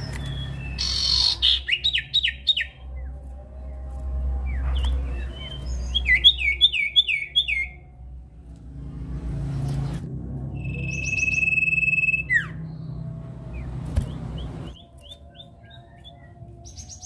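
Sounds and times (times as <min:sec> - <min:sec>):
bird whistling downward notes: 0:00.1 - 0:02.8, 0:04.5 - 0:07.8, 0:10.6 - 0:12.8.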